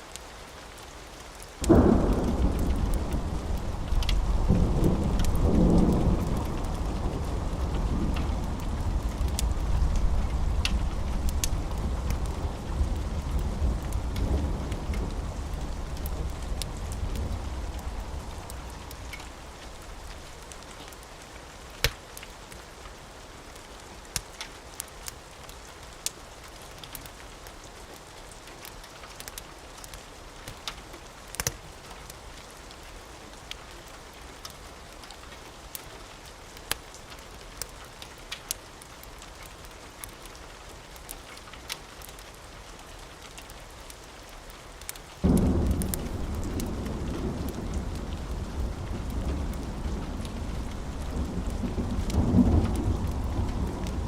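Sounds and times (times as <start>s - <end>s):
steady rain: 0.0s - 54.0s
wood fire crackling: 0.0s - 54.0s
low thunder rumble: 1.6s - 20.5s, 45.2s - 54.0s.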